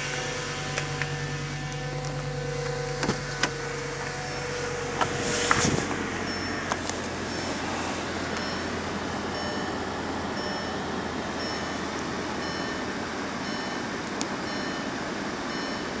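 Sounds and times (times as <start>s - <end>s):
car engine idling: 0.0s - 16.0s
dashboard warning chime: 4.1s - 4.9s, 6.1s - 16.0s.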